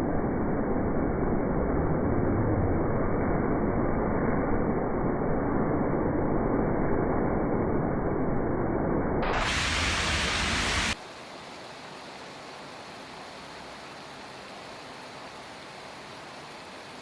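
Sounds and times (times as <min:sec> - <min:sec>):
muffled rumble: 0:09.2 - 0:11.0
heavy rain: 0:09.2 - 0:11.4.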